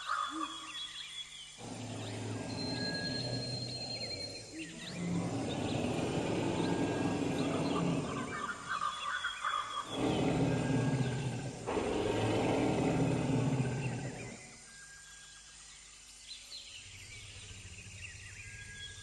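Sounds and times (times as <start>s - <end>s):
birds chirping: 0.0s - 14.9s
low drawn-out animal calls: 1.6s - 14.6s.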